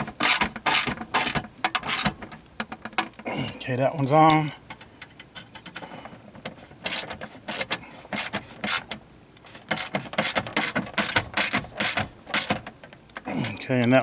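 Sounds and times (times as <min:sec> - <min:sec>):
socket ratchet clicking: 0:06.8 - 0:09.0, 0:09.7 - 0:12.6.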